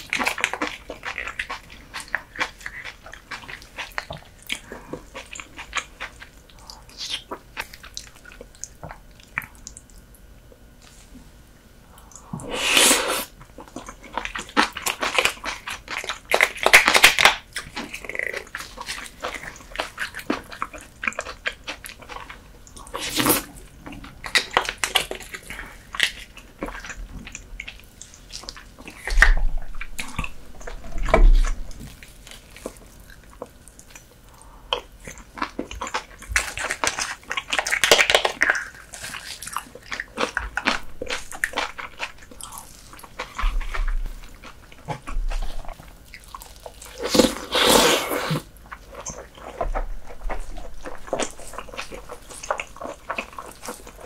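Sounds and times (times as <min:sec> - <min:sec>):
wet chewing and smacking: 0:00.0 - 0:11.1, 0:13.3 - 0:54.0.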